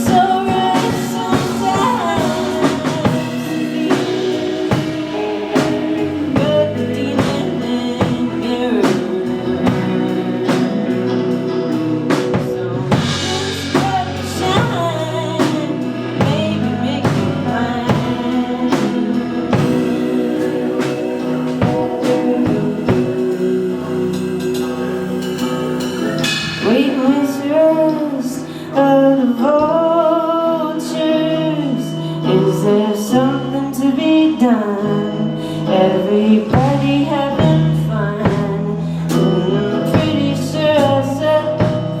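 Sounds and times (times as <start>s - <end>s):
drum kit hits: 0.0s - 11.4s, 12.1s - 28.0s
live rock band playing: 0.0s - 42.0s
person singing: 0.0s - 42.0s.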